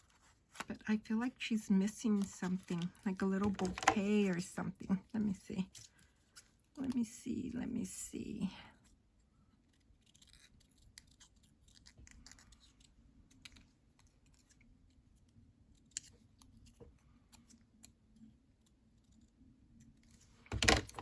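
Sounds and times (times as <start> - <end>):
paper rustling: 2.0 - 4.4.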